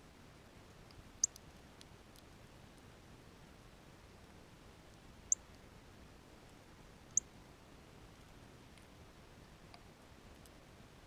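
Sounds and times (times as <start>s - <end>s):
small bird chip calls: 1.2s - 1.4s.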